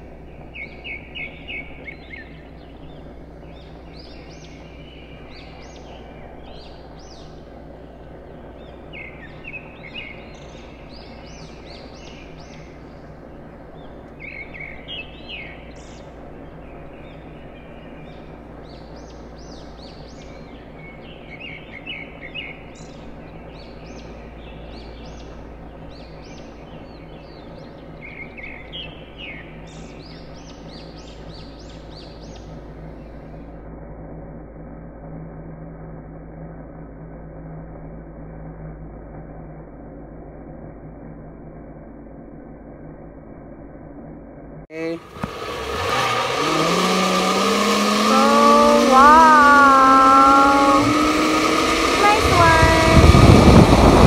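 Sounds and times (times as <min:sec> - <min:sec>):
birds chirping: 0:00.0 - 0:33.5, 0:44.7 - 0:54.0
outdoor background noise: 0:00.0 - 0:54.0.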